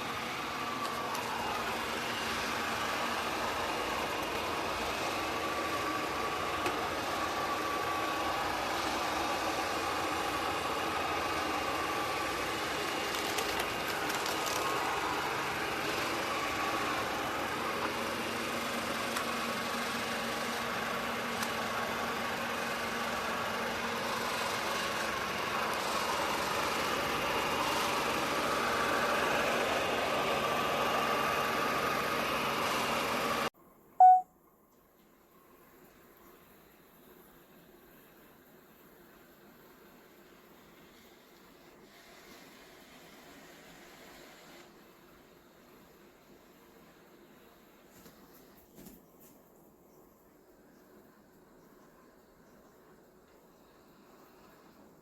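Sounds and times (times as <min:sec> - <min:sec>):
robot vacuum cleaner humming: 0:00.0 - 0:34.2.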